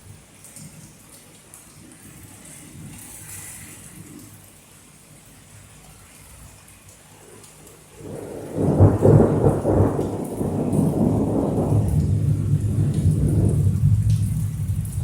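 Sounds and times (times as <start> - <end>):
rain hiss: 0.0 - 15.0
thunder rumbling: 8.0 - 15.0.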